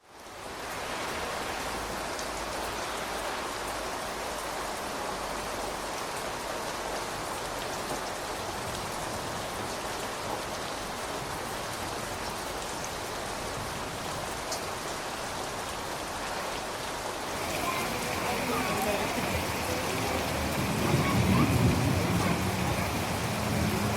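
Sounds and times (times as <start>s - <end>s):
steady rain hiss: 0.0s - 23.9s
raindrops ticking: 17.2s - 23.9s.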